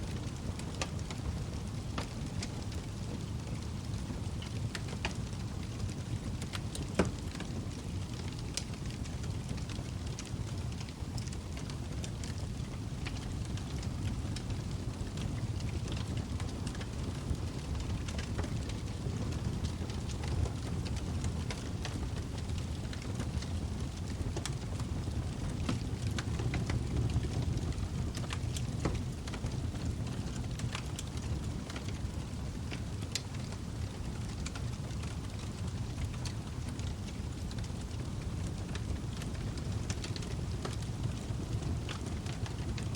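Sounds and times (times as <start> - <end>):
low rumble of flames: 0.0 - 42.9
log fire crackling and popping: 0.1 - 42.9.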